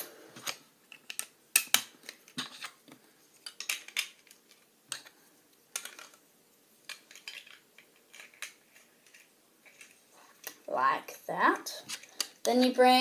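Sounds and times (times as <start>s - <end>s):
plastic bricks clicking: 0.4s - 2.8s, 3.4s - 6.2s, 6.9s - 10.6s.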